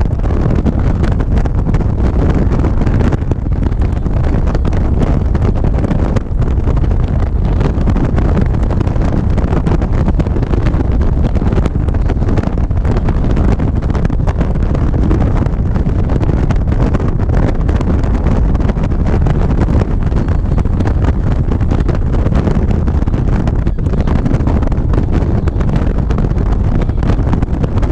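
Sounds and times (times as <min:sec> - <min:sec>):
motorcycle running: 0:00.0 - 0:27.9
wind rushing over microphone: 0:00.0 - 0:27.9.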